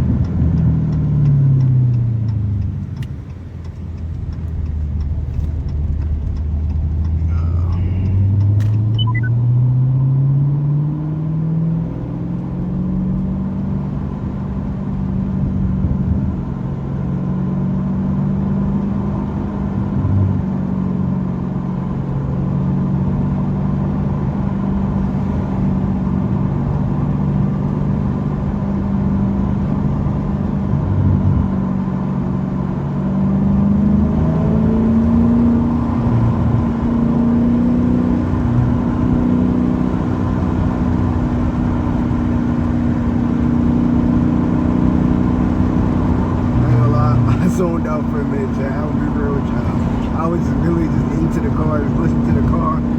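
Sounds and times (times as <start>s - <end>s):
car engine exhaust accelerating: 0.0s - 52.9s.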